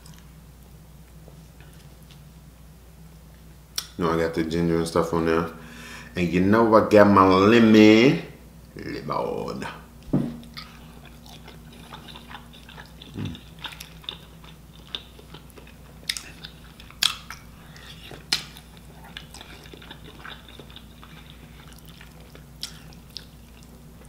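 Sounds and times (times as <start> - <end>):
faint low hum: 0.0 - 24.0
wet chewing and mouth smacks: 10.4 - 24.0.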